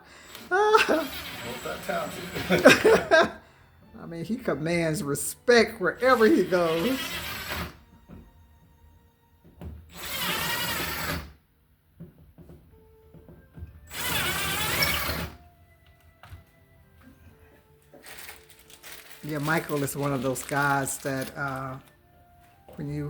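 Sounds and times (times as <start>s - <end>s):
power drill whining: 0.0s - 2.8s, 6.0s - 8.3s, 9.9s - 11.4s, 13.9s - 15.5s
faint background music: 0.0s - 23.0s.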